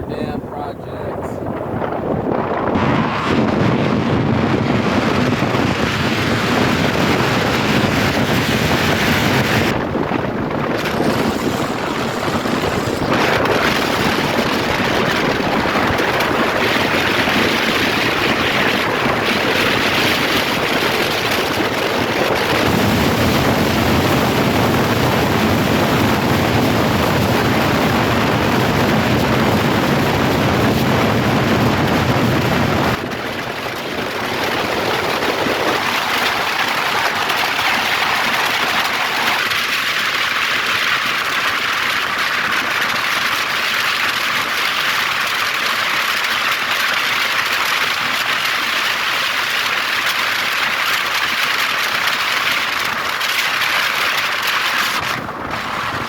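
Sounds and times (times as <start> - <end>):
road traffic: 0.0 - 15.8
wind buffeting microphone: 0.0 - 56.0.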